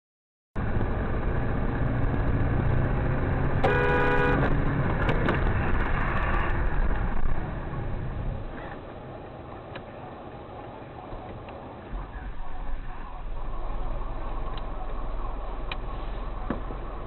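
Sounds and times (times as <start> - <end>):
road and engine noise: 0.6 - 17.0
car horn: 3.6 - 4.6.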